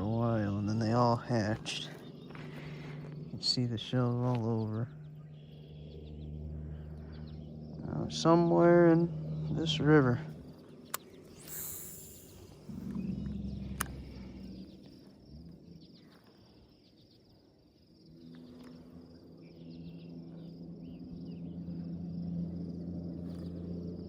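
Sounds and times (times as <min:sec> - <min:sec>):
insects buzzing: 0:00.0 - 0:24.0
low motor hum: 0:00.0 - 0:24.0
sharp click: 0:10.9 - 0:12.4.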